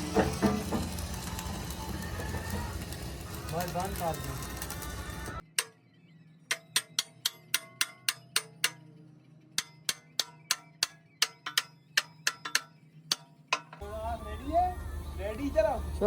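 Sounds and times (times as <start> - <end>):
hammer strikes on metal: 0.1 - 1.1, 5.5 - 5.8, 6.5 - 9.0, 9.6 - 13.8.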